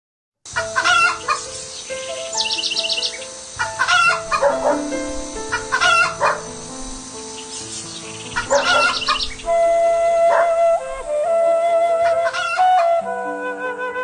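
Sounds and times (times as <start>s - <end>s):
background music of held notes: 0.5s - 14.0s
hens clucking: 0.6s - 1.5s, 3.6s - 6.8s, 8.3s - 9.4s
rooster crowing: 3.8s - 6.5s, 8.4s - 10.8s.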